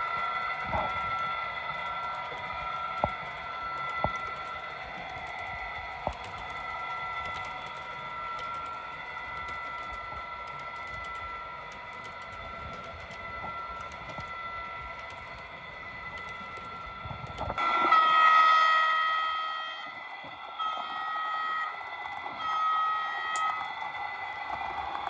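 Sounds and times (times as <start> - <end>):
model locomotive whining hum: 0.0 - 25.0
loud multi-tone sound: 17.6 - 23.8.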